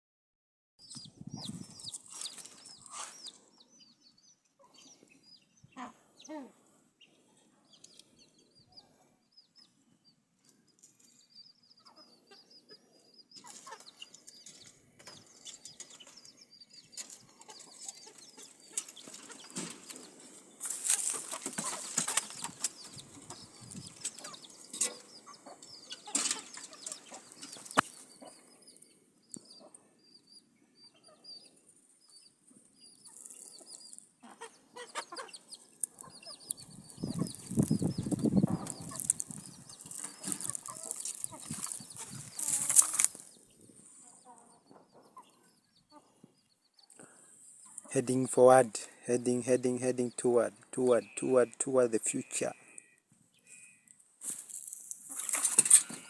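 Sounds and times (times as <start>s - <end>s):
chickens peeping and clucking: 0.8s - 56.0s
wings flapping and rustling: 18.7s - 23.3s, 37.3s - 43.2s.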